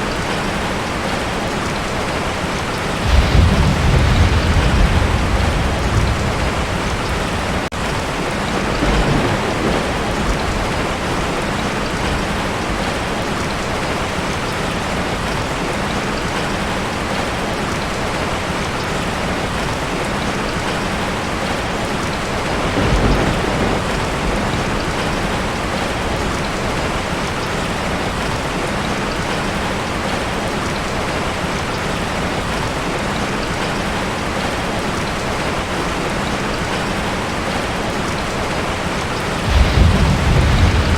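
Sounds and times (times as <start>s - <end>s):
heavy rain on a tin roof: 0.0s - 40.9s
low rolls of thunder: 3.0s - 13.1s, 22.3s - 27.1s, 39.4s - 40.9s.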